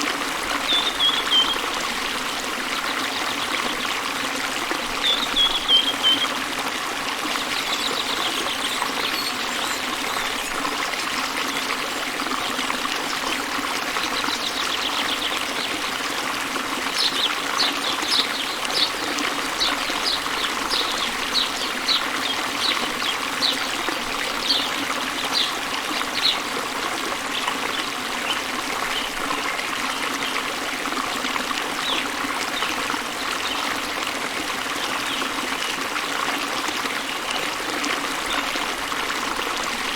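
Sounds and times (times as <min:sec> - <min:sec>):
small waterfall rushing: 0:00.0 - 0:39.9
bird singing trills and chirps: 0:00.7 - 0:01.6, 0:05.0 - 0:06.3.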